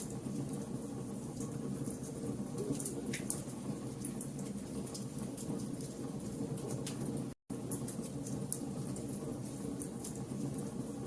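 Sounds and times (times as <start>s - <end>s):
fire crackling: 0.0s - 11.0s.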